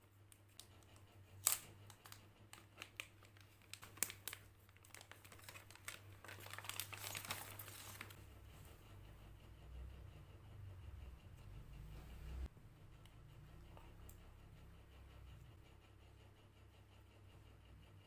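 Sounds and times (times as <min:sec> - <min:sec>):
packaging crinkling: 0:01.4 - 0:08.2.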